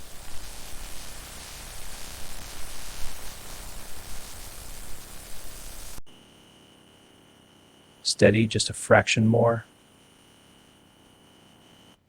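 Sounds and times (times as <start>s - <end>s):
steady broadband hiss: 0.0s - 10.5s.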